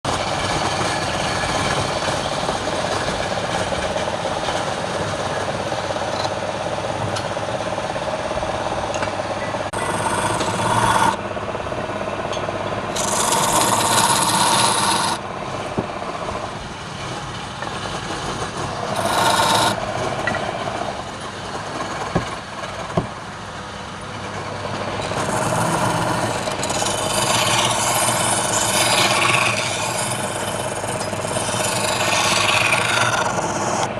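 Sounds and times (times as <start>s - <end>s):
turning tool cutting wood: 9.7s - 11.2s, 12.9s - 15.2s, 18.0s - 21.0s, 24.9s - 33.9s
wood lathe running: 9.7s - 23.0s, 24.3s - 33.9s.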